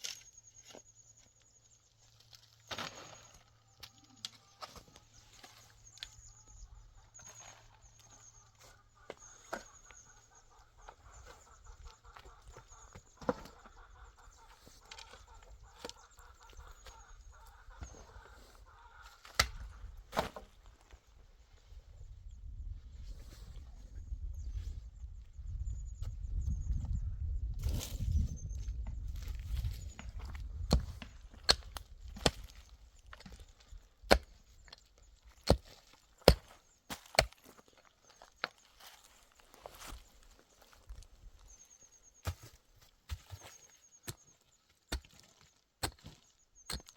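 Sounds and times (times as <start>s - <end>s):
chickens clucking: 6.4s - 19.9s.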